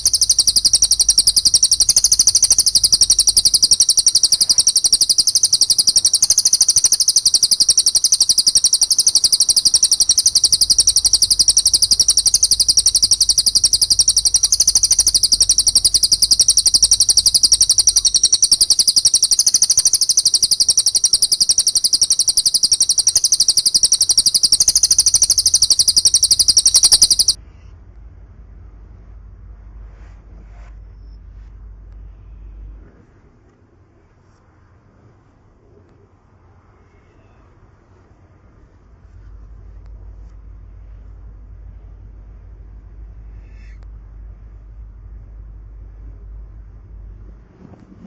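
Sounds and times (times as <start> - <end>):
songbird high chattering trill: 0.0 - 27.4.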